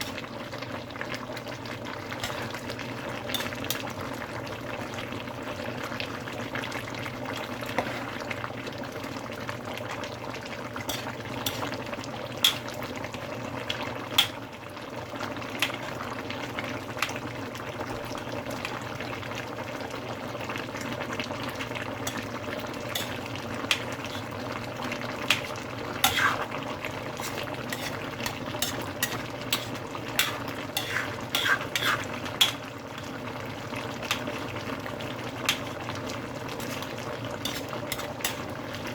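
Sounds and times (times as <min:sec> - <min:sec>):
spoon scraping pan: 0:00.0 - 0:00.3, 0:02.1 - 0:04.0, 0:07.7 - 0:08.4, 0:10.8 - 0:11.8, 0:12.4 - 0:12.8, 0:22.0 - 0:33.2, 0:34.0 - 0:34.6, 0:35.4 - 0:38.9
curry bubbling and sizzling: 0:00.0 - 0:38.9.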